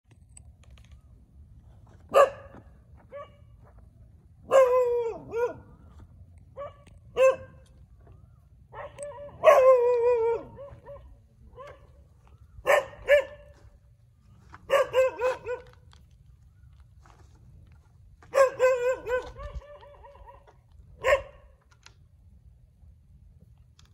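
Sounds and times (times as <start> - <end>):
low steady rumble: 0.1 - 23.9
dogs barking: 2.1 - 3.5, 4.4 - 5.8, 6.5 - 7.8, 8.7 - 12.0, 12.6 - 13.6, 14.6 - 15.8, 18.2 - 21.5
distant dogs barking: 2.1 - 3.7, 4.4 - 13.9, 14.5 - 16.0, 18.2 - 21.6.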